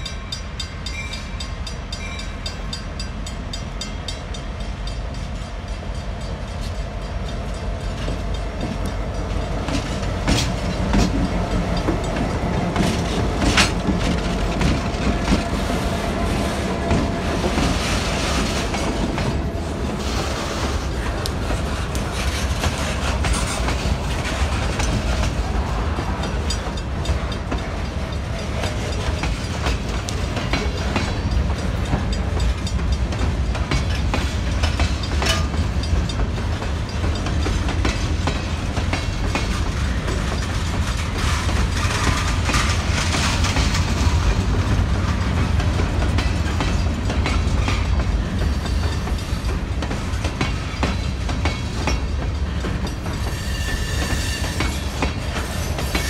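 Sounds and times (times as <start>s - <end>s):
steel wheels clicking and clanking: 0.0s - 56.0s
freight cars rumbling: 2.6s - 56.0s.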